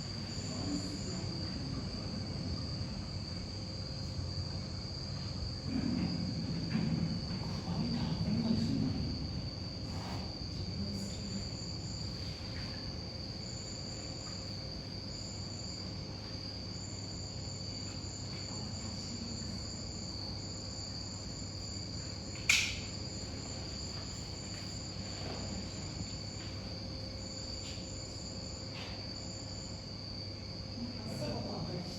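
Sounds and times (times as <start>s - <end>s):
sharp click: 22.4s - 22.9s.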